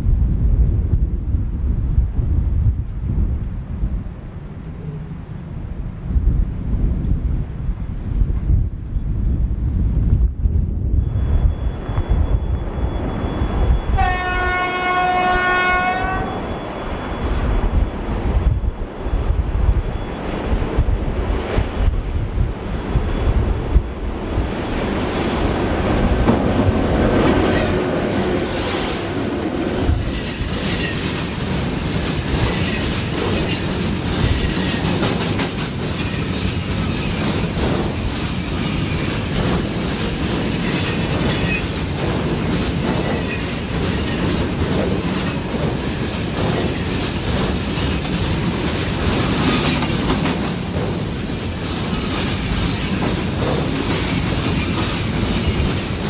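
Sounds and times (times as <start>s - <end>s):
freight train passing: 0.1s - 56.0s
wheels clacking over rail joints: 24.1s - 56.0s.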